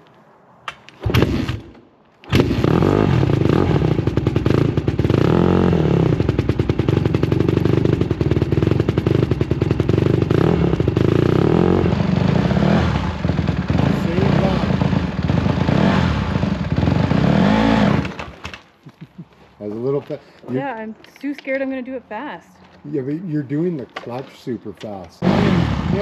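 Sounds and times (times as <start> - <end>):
dirt bike engine running: 2.3 - 18.4, 25.2 - 26.0.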